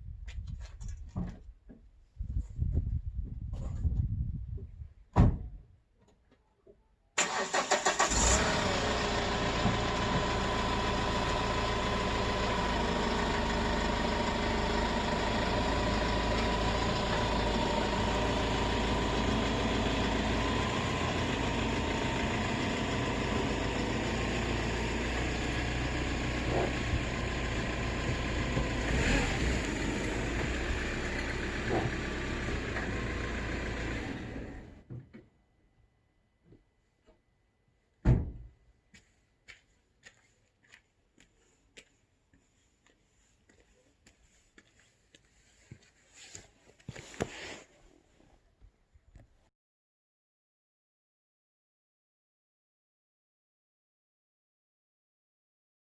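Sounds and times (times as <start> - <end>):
truck engine starting and idling: 7.2 - 34.8.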